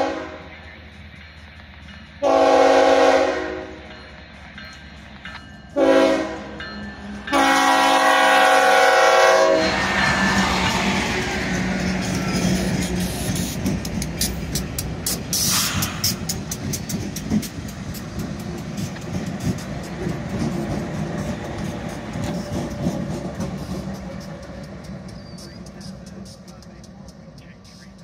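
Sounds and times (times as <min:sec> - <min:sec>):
train rumble: 0:00.0 - 0:28.0
train wheels clicking over rail joints: 0:06.4 - 0:28.0.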